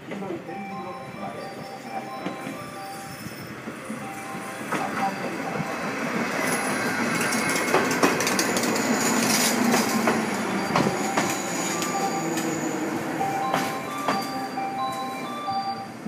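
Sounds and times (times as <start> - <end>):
electric train running noise: 0.0 - 16.0
high squeal of train brakes: 1.6 - 7.0, 8.8 - 16.0
wheels clicking over rail joints: 6.3 - 12.7.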